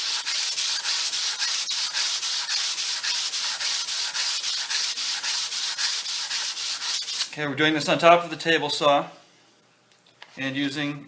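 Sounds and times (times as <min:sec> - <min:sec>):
stone rubbing on sanding belt: 0:00.0 - 0:07.3.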